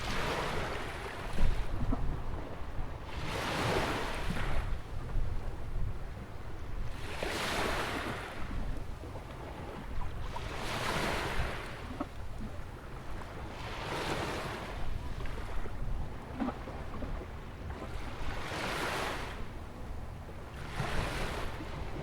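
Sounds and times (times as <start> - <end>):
ocean waves breaking on beach: 20.5 - 22.0.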